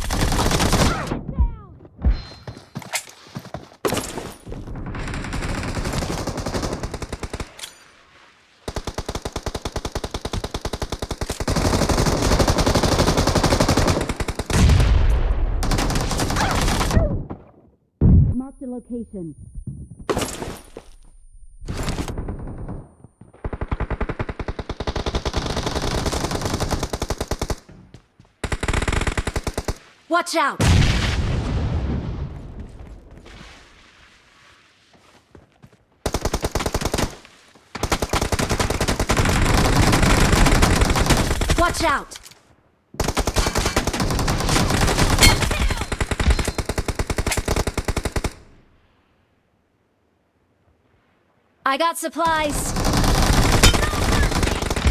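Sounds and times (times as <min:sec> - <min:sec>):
video game automatic gunfire: 0:52.6 - 0:54.9.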